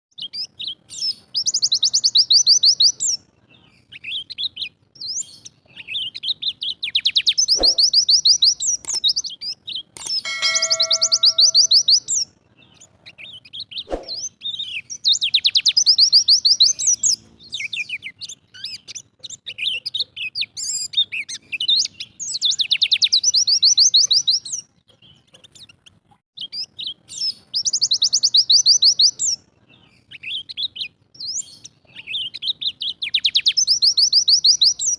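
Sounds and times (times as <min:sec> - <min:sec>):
bird singing trilled bursts: 0:07.5 - 0:08.4, 0:10.0 - 0:12.2
ringing chime-like tone: 0:10.2 - 0:12.0.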